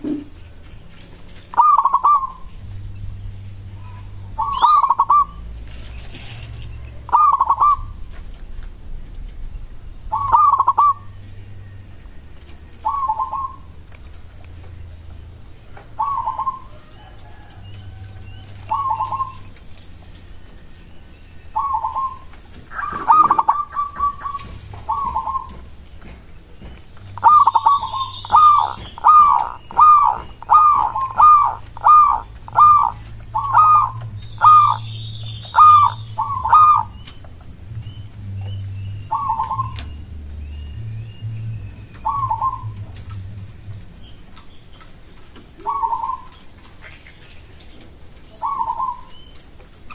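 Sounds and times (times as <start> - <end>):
dove cooing: 0.0 - 2.8, 3.5 - 8.3, 10.0 - 44.2, 44.9 - 49.9
low steady hum: 0.0 - 49.9.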